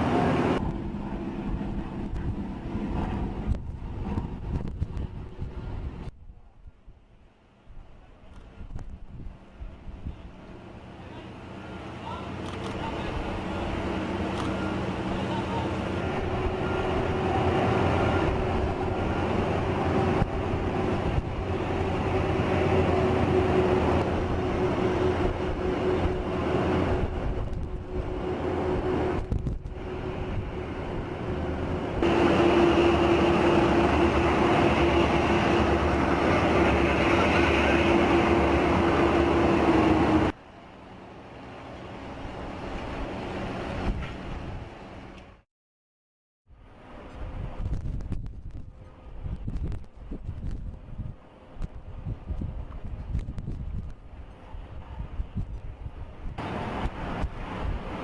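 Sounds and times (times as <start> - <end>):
machinery drone: 10.7 - 40.4.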